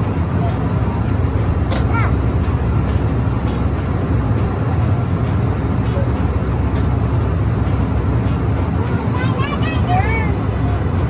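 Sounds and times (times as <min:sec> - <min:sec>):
airliner cabin engine and airflow noise: 0:00.0 - 0:11.0.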